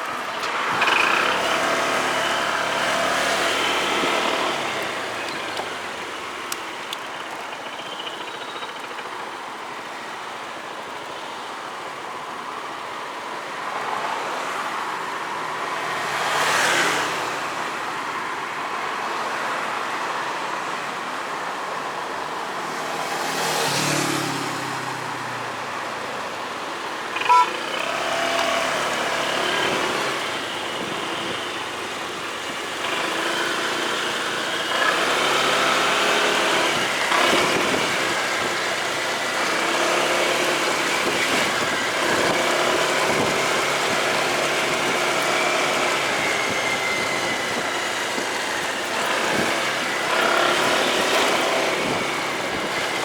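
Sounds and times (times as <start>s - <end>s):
motorcycle engine running: 0.0s - 9.4s, 27.0s - 53.0s
road noise: 0.0s - 53.0s
vehicles passing: 0.0s - 53.0s.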